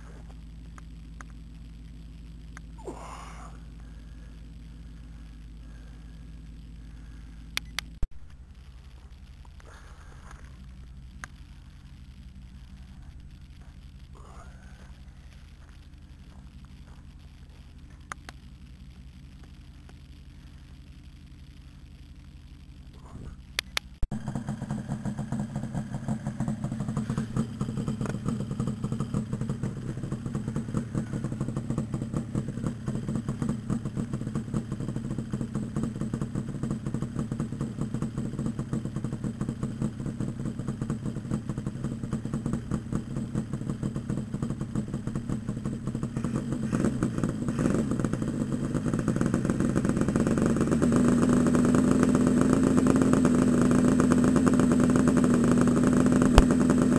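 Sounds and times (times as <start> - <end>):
two-stroke motorcycle engine running: 0.0 - 56.9
sharp clicks: 7.5 - 8.4, 18.0 - 18.5, 23.4 - 24.1.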